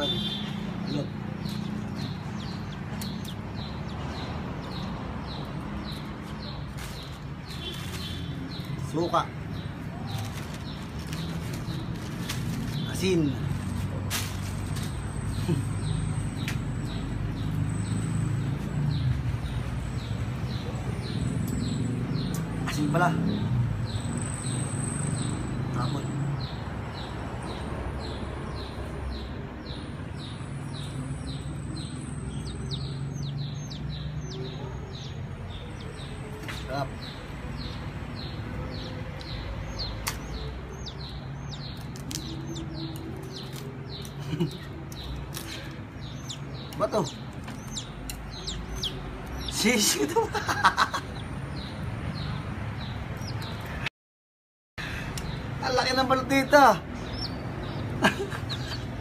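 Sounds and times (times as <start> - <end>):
bird chirping: 0.0 - 13.5, 14.7 - 53.9, 55.2 - 59.0
sharp click: 40.0 - 40.3.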